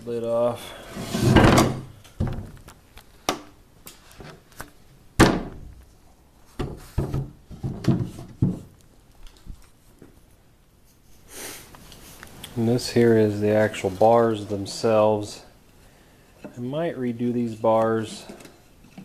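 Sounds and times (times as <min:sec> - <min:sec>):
wooden lid scraping: 0:00.7 - 0:01.9, 0:13.2 - 0:15.4
hollow wooden thunks and knocks: 0:01.3 - 0:02.6, 0:06.6 - 0:08.7.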